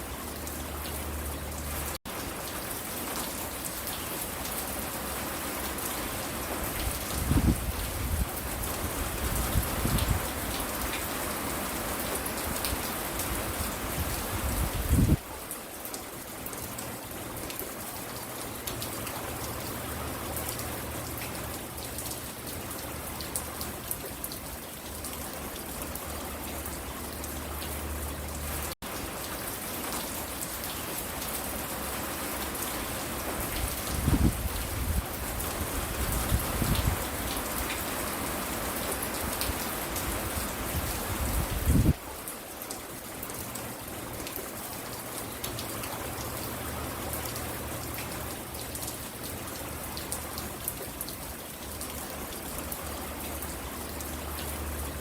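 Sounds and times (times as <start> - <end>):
rain pattering on a porch: 0.0 - 55.0.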